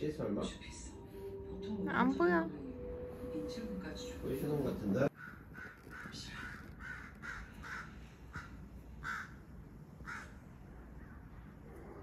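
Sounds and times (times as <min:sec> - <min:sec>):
bird cawing: 0:05.1 - 0:10.4.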